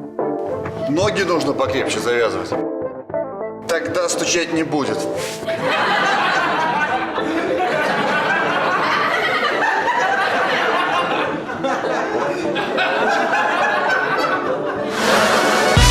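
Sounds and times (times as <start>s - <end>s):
crowd laughter: 5.2s - 15.9s.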